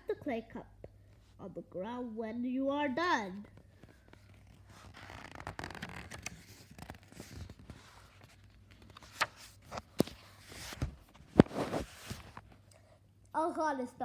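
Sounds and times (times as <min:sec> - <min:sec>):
paper rustling page turned: 0:03.8 - 0:12.5.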